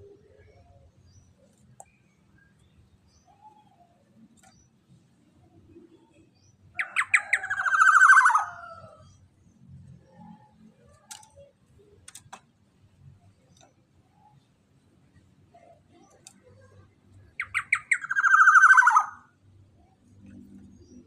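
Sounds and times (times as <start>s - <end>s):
bird calling harshly: 17.4s - 19.2s.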